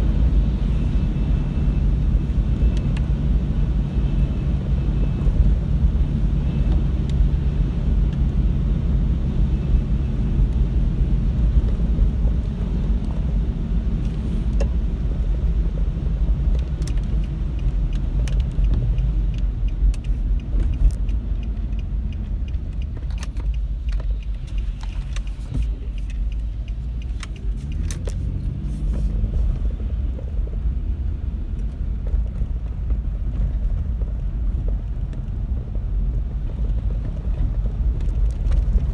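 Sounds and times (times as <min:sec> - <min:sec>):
car engine and road rumble: 0:00.0 - 0:38.9
light ticks: 0:16.4 - 0:28.4.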